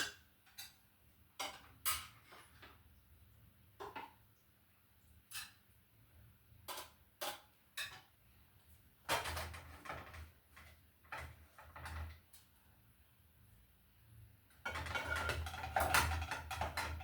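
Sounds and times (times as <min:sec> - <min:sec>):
pots and dishes clattering: 0:01.4 - 0:02.8, 0:09.1 - 0:12.2, 0:14.6 - 0:17.0.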